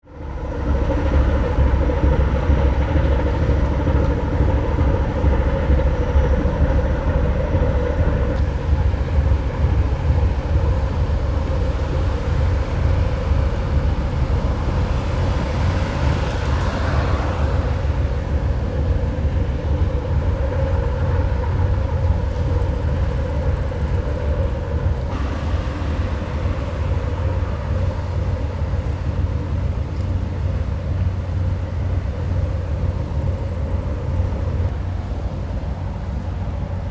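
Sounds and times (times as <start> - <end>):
faint hum: 0.0 - 36.9
ferry engines rumbling: 0.0 - 36.9
rushing sound: 25.0 - 29.8.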